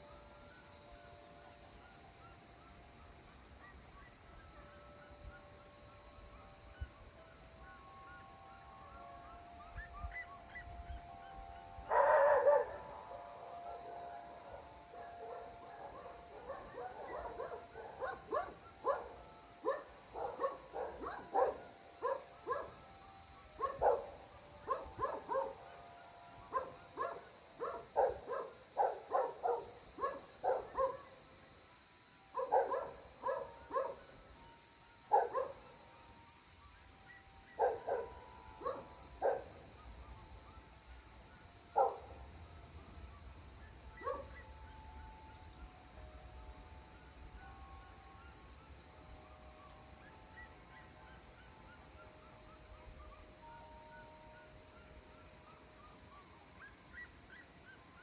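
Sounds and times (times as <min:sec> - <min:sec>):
steady high hiss: 0:00.0 - 0:58.0
dog barking: 0:11.9 - 0:12.8, 0:15.0 - 0:22.8, 0:23.6 - 0:25.6, 0:26.5 - 0:31.2, 0:32.4 - 0:34.0, 0:35.1 - 0:35.6, 0:37.6 - 0:39.6, 0:41.8 - 0:42.1, 0:44.0 - 0:44.4.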